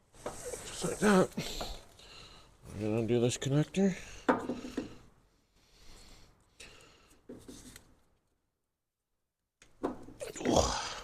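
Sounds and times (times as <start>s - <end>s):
soft scrapes and rustles: 0.0s - 1.9s, 7.3s - 8.0s.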